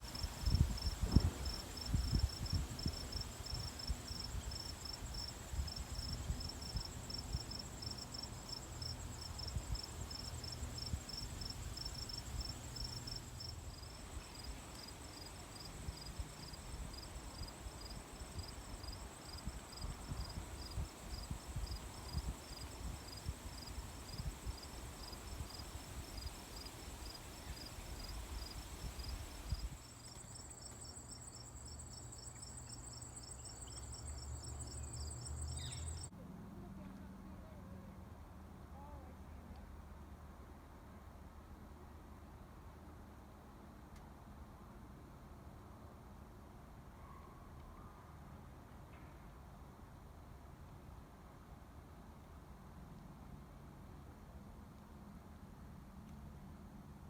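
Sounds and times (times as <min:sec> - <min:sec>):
crickets chirping: 0:00.0 - 0:36.1.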